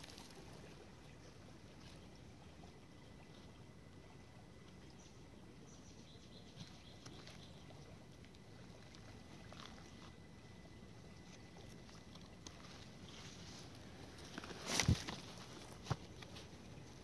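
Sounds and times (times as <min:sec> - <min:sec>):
faint high chirps and ticks: 0:01.0 - 0:14.5.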